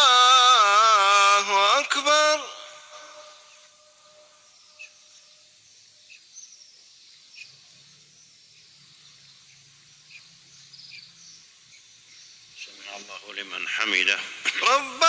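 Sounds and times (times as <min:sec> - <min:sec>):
amplified voice echo: 0:00.0 - 0:04.3, 0:12.8 - 0:15.0
faint bird chirps: 0:02.6 - 0:13.4.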